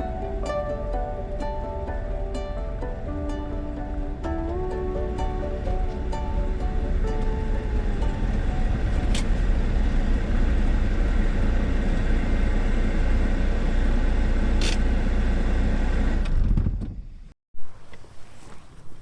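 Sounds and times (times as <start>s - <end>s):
background music: 0.0s - 9.5s
van engine and road rumble: 0.0s - 19.0s.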